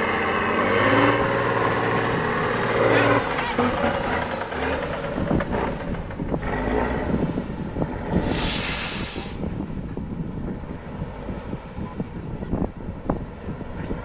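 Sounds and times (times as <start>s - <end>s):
truck engine rumbling: 0.0s - 14.0s
compressed air hissing: 8.2s - 9.4s.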